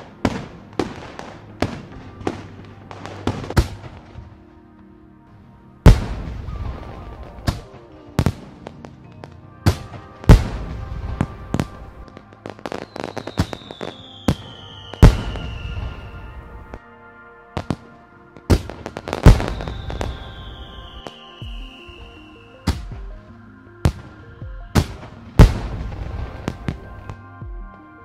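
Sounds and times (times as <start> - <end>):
fireworks crackling: 0.0 - 4.7, 5.8 - 16.8, 17.6 - 27.2
distant fireworks bangs: 5.8 - 16.8, 17.6 - 27.2
falling firework whistle: 9.7 - 16.8, 17.6 - 27.2.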